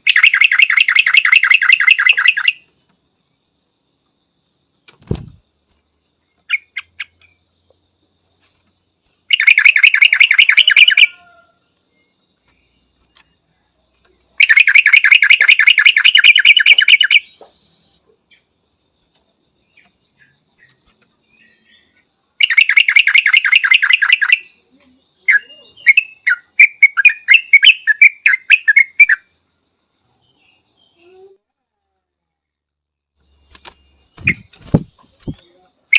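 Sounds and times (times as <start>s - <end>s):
bird chattering: 0.0s - 2.6s
bird chirps: 0.0s - 5.4s, 6.1s - 31.4s, 33.2s - 35.9s.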